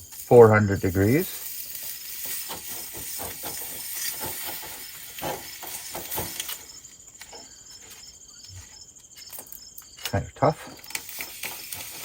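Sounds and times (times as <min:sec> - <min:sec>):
meat sizzling in a pan: 0:00.0 - 0:06.8, 0:10.8 - 0:12.0.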